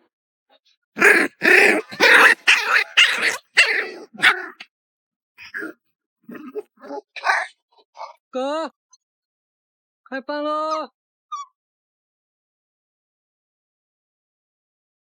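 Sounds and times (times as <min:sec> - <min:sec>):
dog barking: 0:01.0 - 0:04.7
dog yipping and whimpering: 0:01.4 - 0:04.6.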